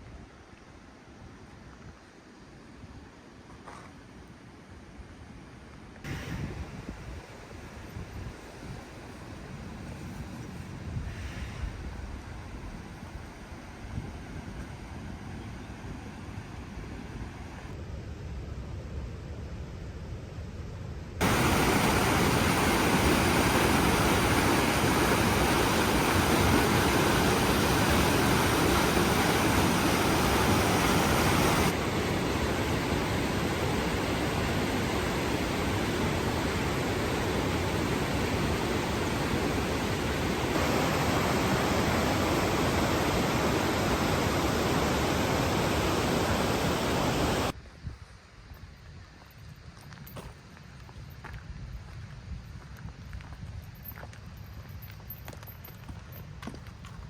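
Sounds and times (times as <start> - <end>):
fast-flowing water rushing: 21.2 - 47.5.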